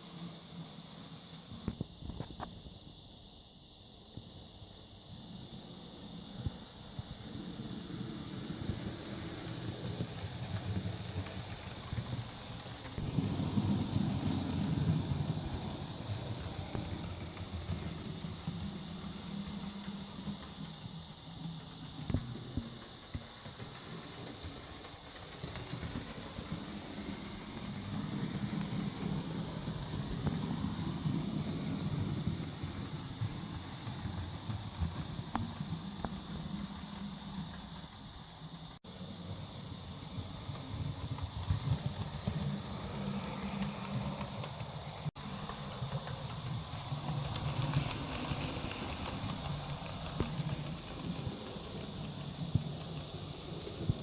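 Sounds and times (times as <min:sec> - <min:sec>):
model train motor hum and rumble: 0:04.4 - 0:54.0
wheels clicking over rail joints: 0:07.2 - 0:54.0.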